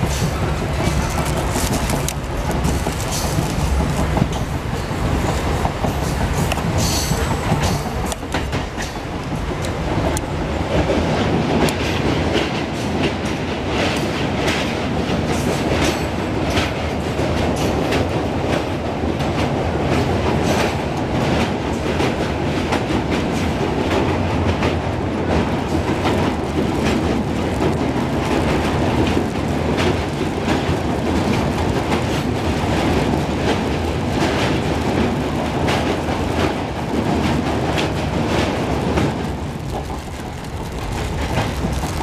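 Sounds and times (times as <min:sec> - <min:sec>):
train rumble: 0:00.0 - 0:42.0
wheels clickety-clack: 0:00.0 - 0:42.0
sharp clicks and rattles: 0:00.7 - 0:04.5.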